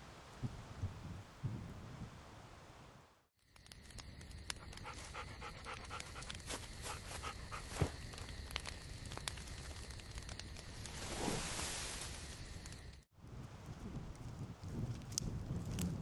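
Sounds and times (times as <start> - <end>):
dog panting: 4.9 - 6.3
small clicks and snaps: 14.1 - 16.0.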